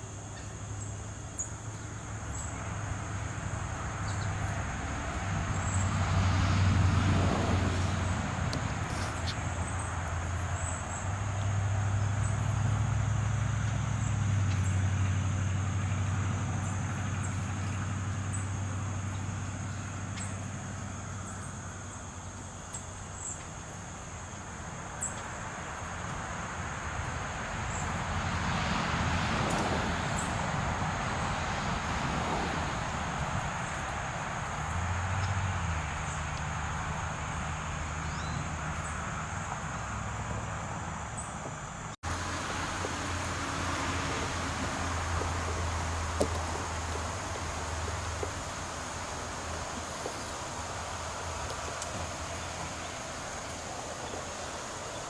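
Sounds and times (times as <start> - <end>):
vehicle engine hum: 0.0 - 55.0
tyre noise: 38.8 - 55.0.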